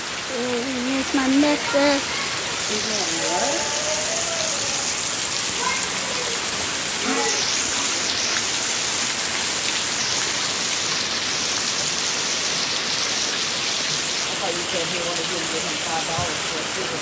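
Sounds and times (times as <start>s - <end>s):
heavy rain on hard surfaces: 0.0s - 17.0s
faint voice: 0.3s - 7.6s.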